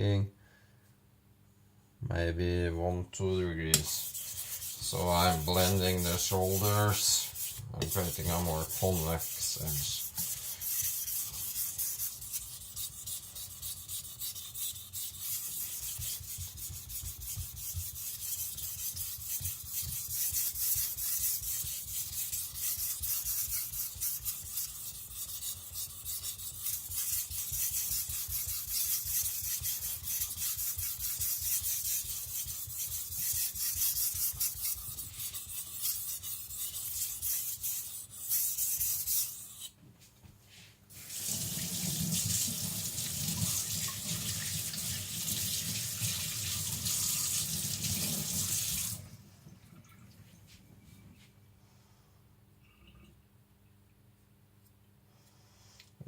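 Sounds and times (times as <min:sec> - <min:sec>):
knife scraping on whetstone: 0:03.8 - 0:39.8.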